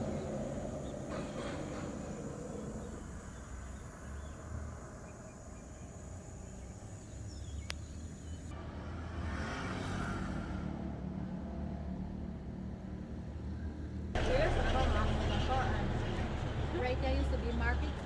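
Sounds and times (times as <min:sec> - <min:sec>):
steady low rumble: 0:00.0 - 0:08.5.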